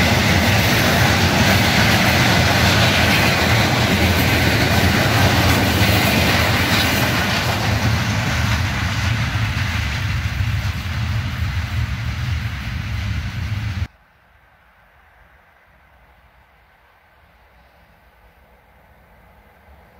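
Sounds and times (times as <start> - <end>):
train rumble: 0.0 - 13.9
wheels on rails: 0.0 - 13.9.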